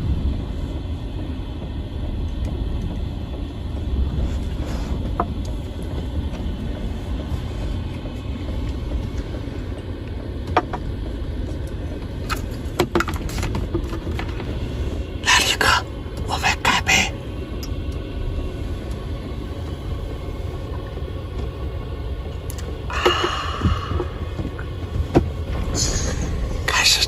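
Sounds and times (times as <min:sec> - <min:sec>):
gale wind buffeting a van: 0:00.0 - 0:27.0.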